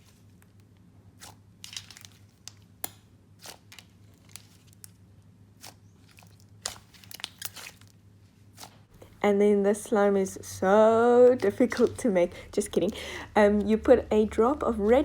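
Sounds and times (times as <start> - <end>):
slime crackling and popping: 0.5 - 5.0, 5.6 - 8.7.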